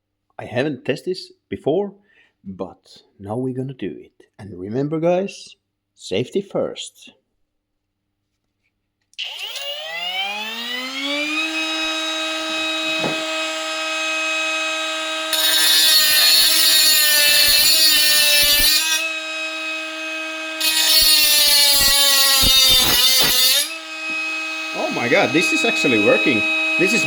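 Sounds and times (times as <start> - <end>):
angle grinder motor whine: 9.2 - 27.0
grinding disc cutting metal: 9.2 - 27.0.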